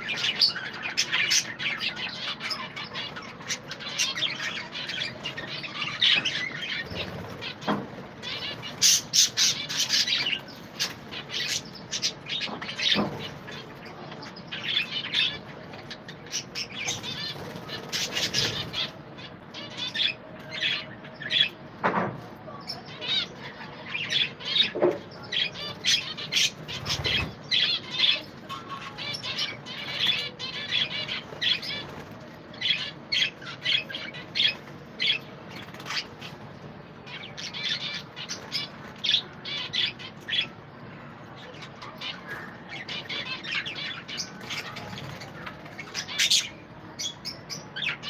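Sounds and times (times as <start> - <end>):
budgerigars chattering: 0.0 - 13.6, 14.5 - 21.6, 22.9 - 32.0
wings flapping: 6.6 - 12.1, 16.8 - 18.9, 25.7 - 27.4.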